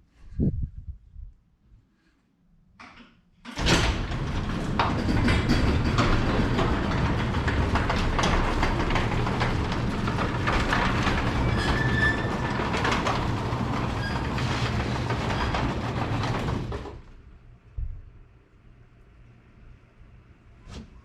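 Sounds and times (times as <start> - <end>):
wind noise on microphone: 0.0 - 1.8.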